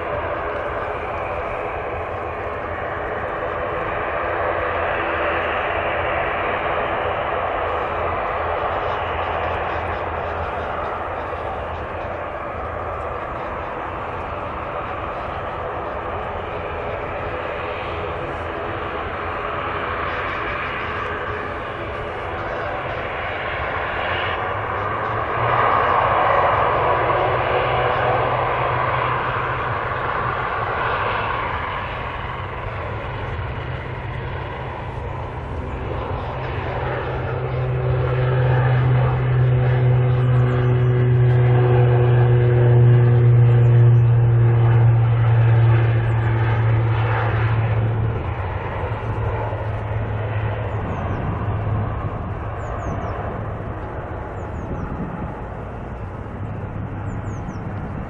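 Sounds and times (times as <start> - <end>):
propeller aircraft engines humming: 0.0 - 58.0.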